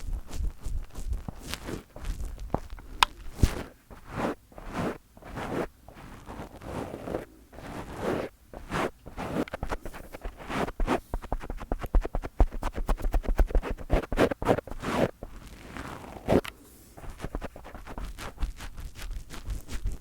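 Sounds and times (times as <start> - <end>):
microphone handling thumps: 0.0 - 5.5
fingers scratching on microphone: 0.0 - 20.0.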